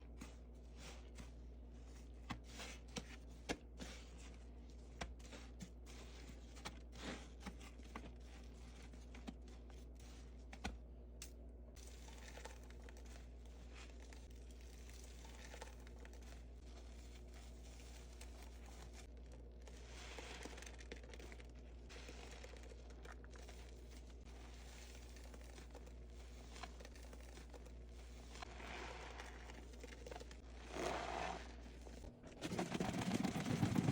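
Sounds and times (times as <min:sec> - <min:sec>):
low steady hum: 0:00.0 - 0:33.9
soapy sponge crackling: 0:12.0 - 0:32.2
sponge rustling hiss: 0:23.4 - 0:32.1.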